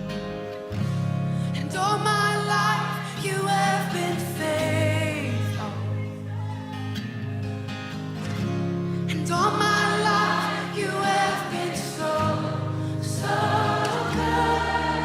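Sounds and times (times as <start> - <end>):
group singing worship music: 1.8 - 4.9, 9.4 - 15.0.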